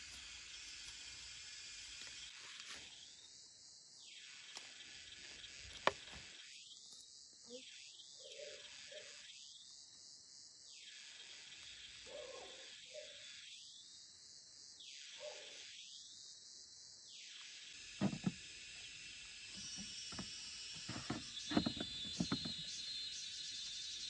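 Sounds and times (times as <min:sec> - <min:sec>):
insects chirring: 0:00.0 - 0:24.0
sharp knocks and thuds: 0:18.0 - 0:18.5, 0:19.6 - 0:22.7.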